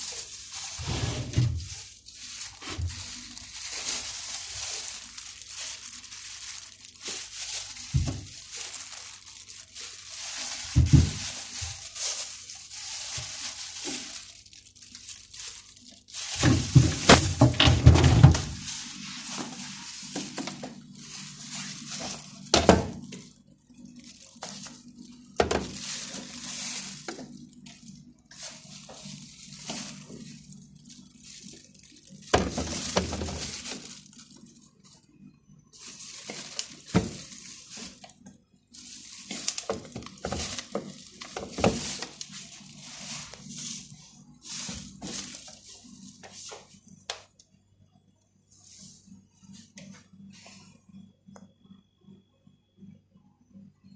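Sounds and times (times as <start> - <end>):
faint low hum: 0.0 - 53.9.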